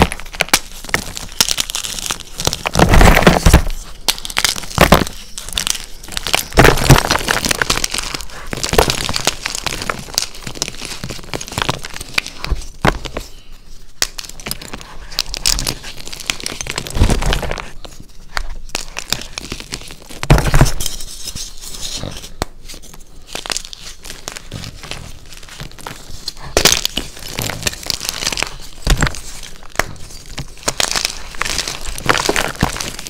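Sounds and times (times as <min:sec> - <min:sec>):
chalk crunching by hand: 0:00.0 - 0:12.7.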